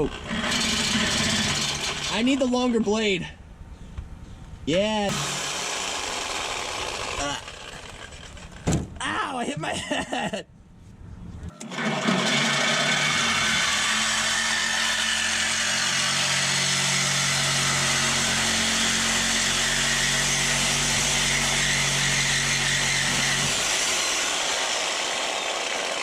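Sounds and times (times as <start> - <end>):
reciprocating saw cutting metal pipe: 0.0 - 2.6, 5.1 - 8.6, 11.6 - 26.0
saw motor hum: 0.0 - 2.7, 5.1 - 8.6, 11.5 - 26.0.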